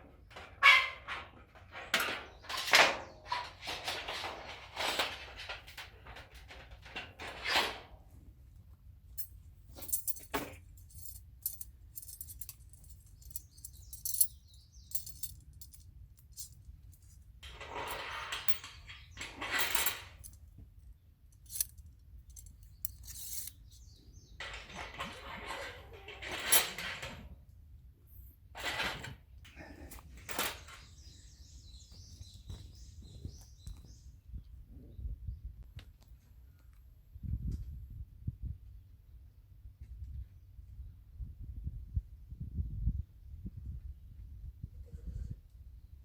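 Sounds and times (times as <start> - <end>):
light metal clinks: 9.2 - 17.2, 21.3 - 24.0
gear rustling: 9.2 - 20.5, 21.3 - 23.9.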